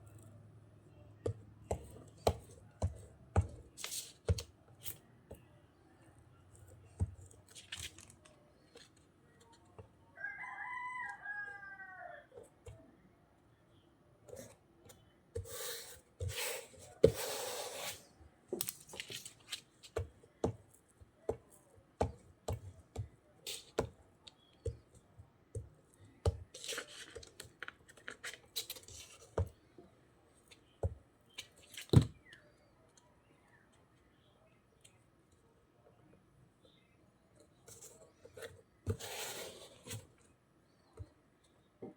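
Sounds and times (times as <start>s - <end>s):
paper rustling: 7.4s - 9.0s, 18.6s - 20.0s.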